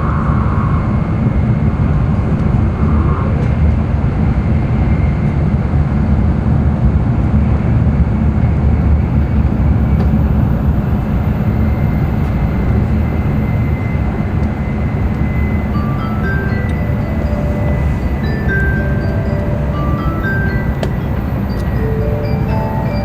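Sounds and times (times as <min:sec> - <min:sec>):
train cabin rumble and hiss: 0:00.0 - 0:23.0
bell-like announcement chime: 0:13.7 - 0:23.0.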